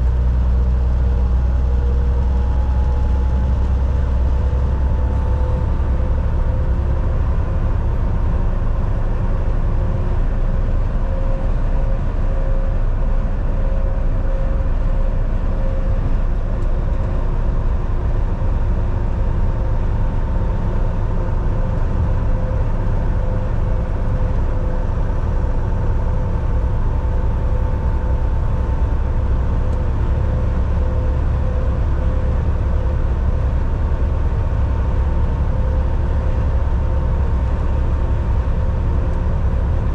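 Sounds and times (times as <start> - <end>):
road rumble: 0.0 - 39.9
truck engine drone: 0.0 - 39.9
faint whine: 1.0 - 39.9.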